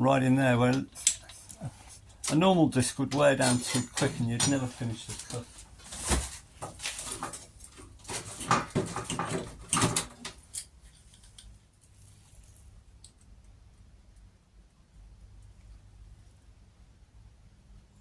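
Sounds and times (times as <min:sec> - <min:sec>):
sheet steel clinking and scraping: 0:03.1 - 0:05.4
faint low hum: 0:09.7 - 0:18.0.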